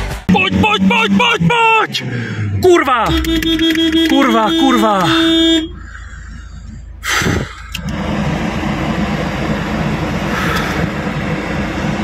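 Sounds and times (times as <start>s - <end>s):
car engine running under load: 0.0s - 12.0s
engine knock: 9.8s - 12.0s.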